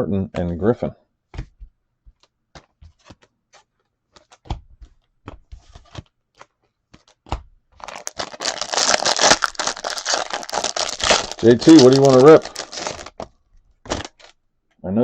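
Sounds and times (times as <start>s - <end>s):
cards clicking and tapping: 1.4s - 7.5s
foil wrapper tearing and crinkling: 7.8s - 14.4s.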